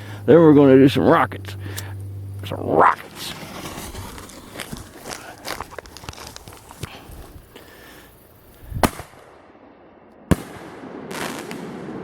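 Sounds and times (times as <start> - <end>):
firework hiss: 3.0 - 9.2
firework mortar thump: 8.7 - 9.1.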